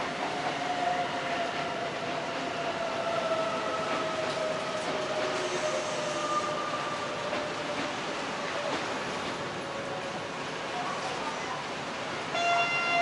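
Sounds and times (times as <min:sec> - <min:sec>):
train rushing noise: 0:00.0 - 0:13.0.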